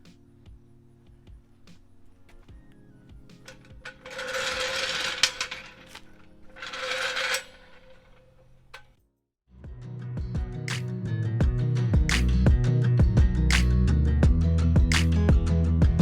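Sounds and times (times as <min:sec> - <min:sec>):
background music: 0:00.0 - 0:06.7, 0:09.5 - 0:16.0
small metallic clicks: 0:02.3 - 0:09.1.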